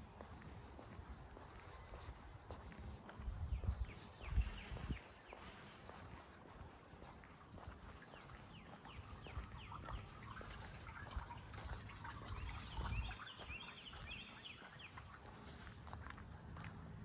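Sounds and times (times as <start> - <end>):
birds calling: 6.9 - 15.6.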